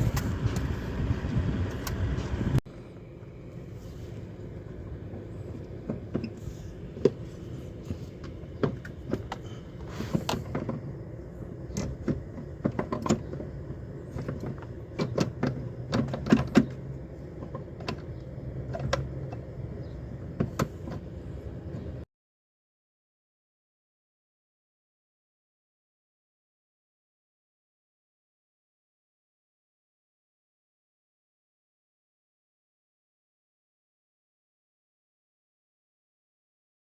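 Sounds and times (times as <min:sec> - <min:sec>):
steady low hum: 0:00.0 - 0:22.1.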